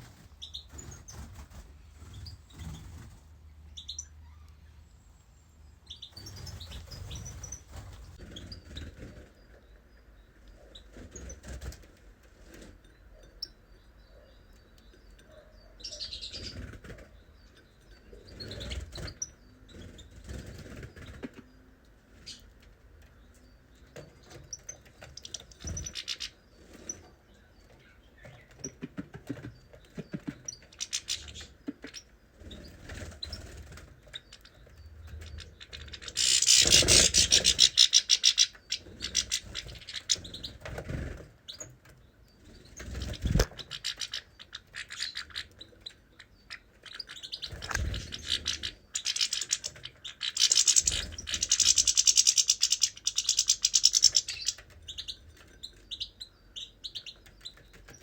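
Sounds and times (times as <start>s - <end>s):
wings fluttering: 0.0s - 3.6s, 6.1s - 9.4s, 28.3s - 37.9s, 42.5s - 44.2s, 47.4s - 55.5s
small birds chirping: 0.0s - 58.0s.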